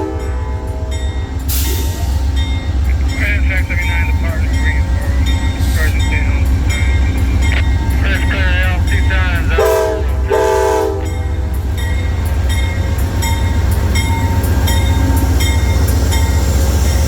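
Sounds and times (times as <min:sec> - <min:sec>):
train horn blasts: 0:00.0 - 0:01.1, 0:08.8 - 0:11.5
moving train rumble: 0:00.0 - 0:17.0.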